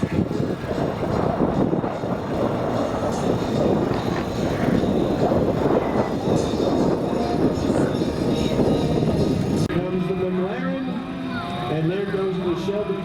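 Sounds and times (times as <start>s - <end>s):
vehicle engine rumbling: 0.0s - 9.7s.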